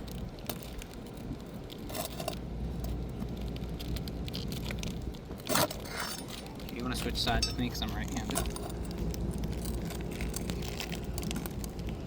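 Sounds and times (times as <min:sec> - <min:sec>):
low steady rumble: 0:00.0 - 0:12.0
pry bar scraping shingles: 0:05.4 - 0:07.4.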